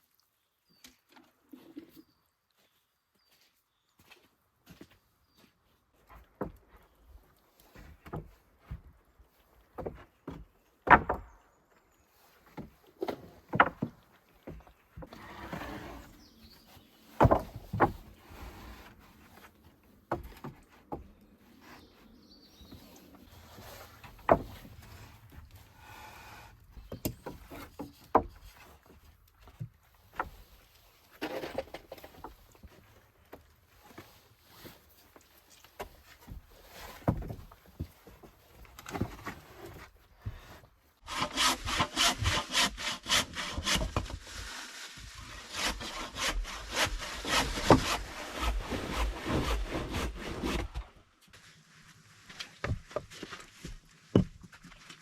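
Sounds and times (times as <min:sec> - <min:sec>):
rasping strokes across wood: 0:15.1 - 0:19.3, 0:40.3 - 0:50.9
knocks of wood handled: 0:17.1 - 0:18.2.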